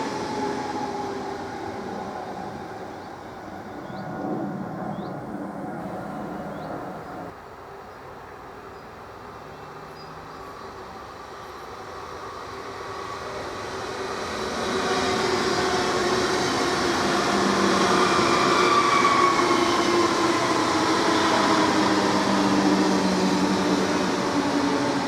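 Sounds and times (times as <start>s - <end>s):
electric train passing: 0.0s - 25.0s.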